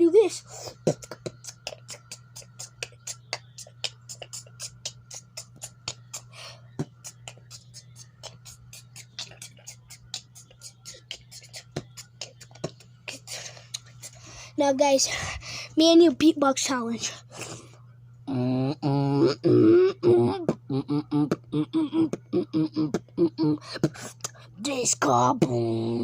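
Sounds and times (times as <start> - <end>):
steady low hum: 0.0 - 26.0
beatboxing mouth clicks: 0.7 - 14.2, 18.3 - 24.4, 25.2 - 26.0.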